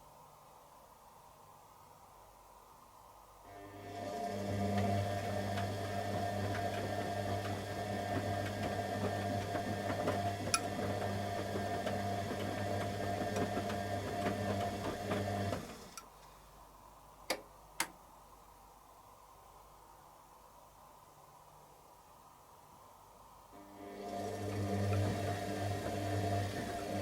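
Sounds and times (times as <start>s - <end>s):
washing machine motor humming: 3.5s - 16.0s, 23.6s - 27.0s.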